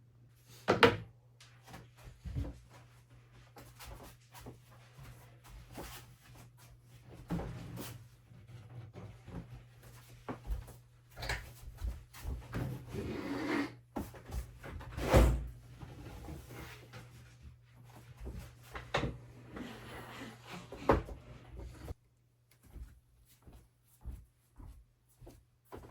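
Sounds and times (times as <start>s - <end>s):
wood sliding scrape: 19.4s - 22.0s.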